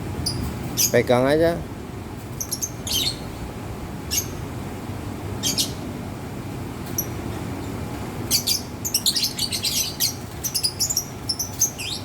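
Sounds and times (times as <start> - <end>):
birds chirping shrilly: 0.2 - 1.4, 2.3 - 3.4, 4.0 - 4.5, 5.4 - 5.9, 8.2 - 12.0.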